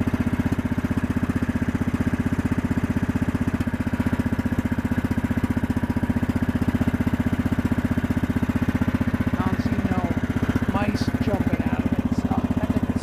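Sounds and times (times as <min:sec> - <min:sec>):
mower engine chugging: 0:00.0 - 0:13.0.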